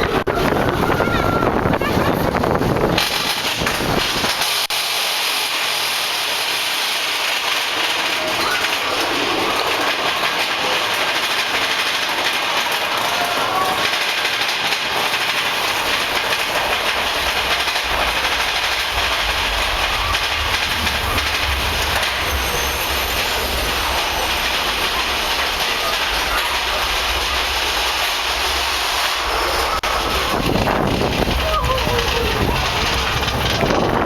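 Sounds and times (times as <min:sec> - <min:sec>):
roller coaster cars rattling: 0:00.0 - 0:34.0
deep rumble: 0:15.7 - 0:34.0.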